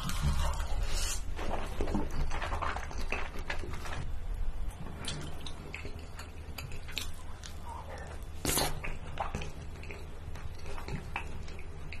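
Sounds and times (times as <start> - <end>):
wet chewing and mouth noises: 4.8 - 12.0.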